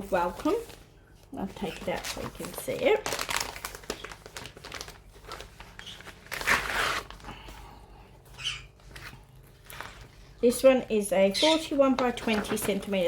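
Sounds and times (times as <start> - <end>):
packaging crinkling and rustling: 0.0 - 7.6, 8.7 - 10.4, 11.8 - 13.0.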